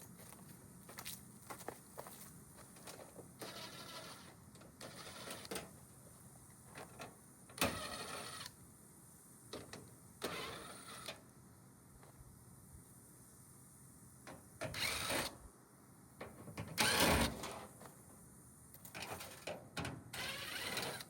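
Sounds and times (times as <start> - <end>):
metal scraping and rattling: 18.9 - 19.6.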